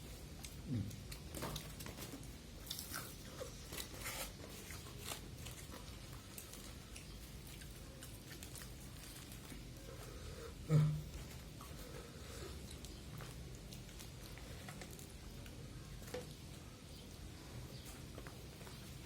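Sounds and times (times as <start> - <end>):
crunchy bites and chewing: 0.3 - 10.0
crisp crackles: 0.4 - 10.2, 11.1 - 16.3.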